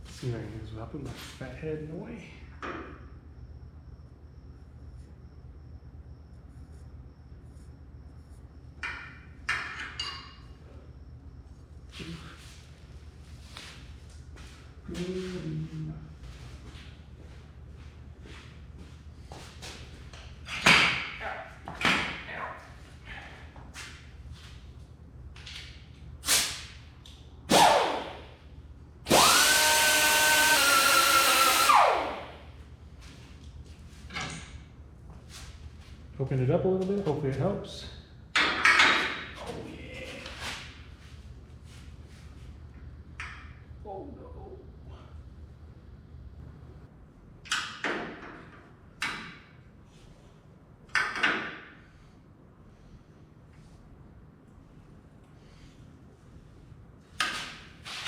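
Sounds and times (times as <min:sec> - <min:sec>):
power drill whining: 0:29.1 - 0:32.3.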